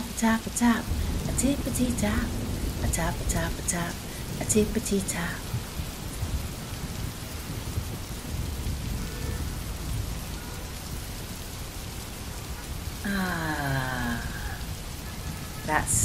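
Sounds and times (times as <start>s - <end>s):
rain on wet pavement: 0.0s - 16.0s
person humming: 13.0s - 14.7s.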